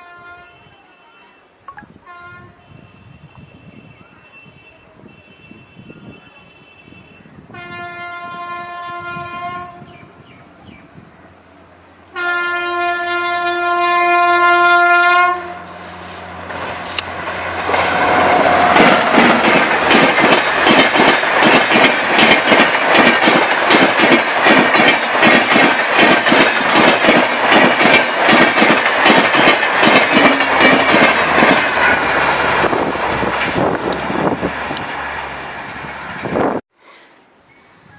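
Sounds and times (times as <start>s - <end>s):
locomotive horn blasts: 0.0s - 9.9s, 12.1s - 15.7s
train rushing past: 7.5s - 36.6s
wheels clattering over rail joints: 16.4s - 32.3s.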